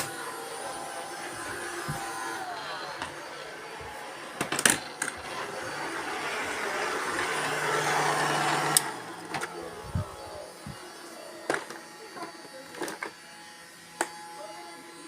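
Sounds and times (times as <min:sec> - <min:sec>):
robot vacuum cleaners whirring: 0:00.0 - 0:15.0.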